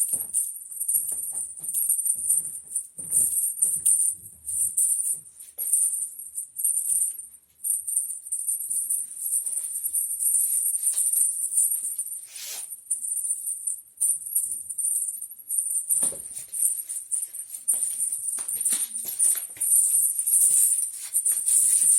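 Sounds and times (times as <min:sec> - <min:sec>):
small bell jingling: 0:00.0 - 0:21.9.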